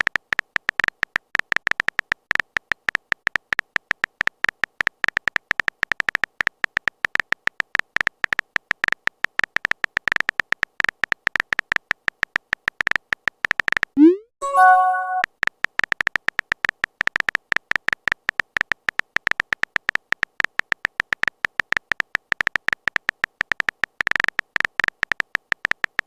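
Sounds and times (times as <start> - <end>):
phone typing beeps: 14.0 - 15.3.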